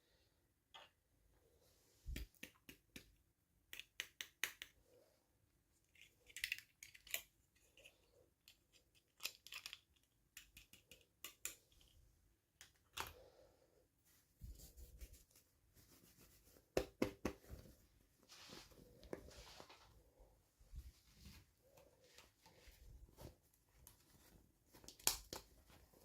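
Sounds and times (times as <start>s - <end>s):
plastic toys clicking and tapping: 2.2s - 4.8s, 5.9s - 12.0s.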